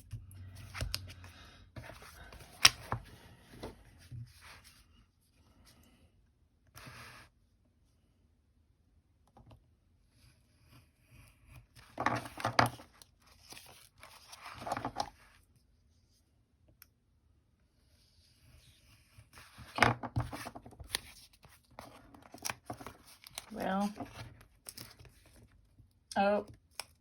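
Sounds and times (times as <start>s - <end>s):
paper rustling and crinkling: 11.8s - 15.3s, 19.4s - 25.6s.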